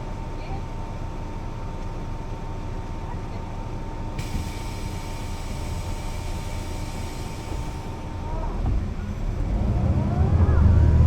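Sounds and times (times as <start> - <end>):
bus diesel engine rumbling: 0.0 - 11.0.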